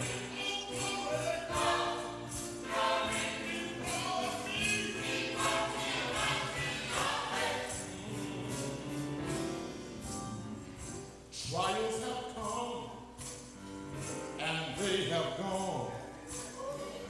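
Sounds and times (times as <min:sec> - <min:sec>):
gospel choir singing: 0:00.0 - 0:13.1
instrumental accompaniment with beat: 0:00.0 - 0:17.0.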